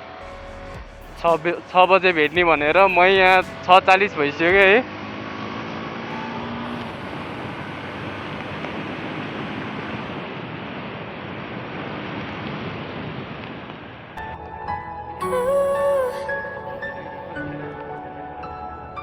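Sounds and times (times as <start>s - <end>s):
music: 0.0s - 10.3s, 14.2s - 19.0s.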